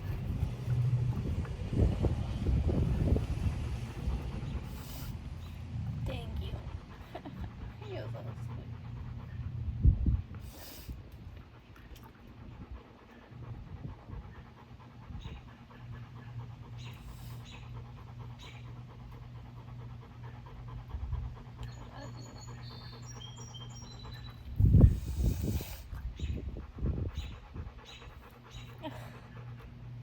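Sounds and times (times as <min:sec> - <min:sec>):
dog panting: 0:00.0 - 0:30.0
small bird chirping: 0:21.7 - 0:24.5.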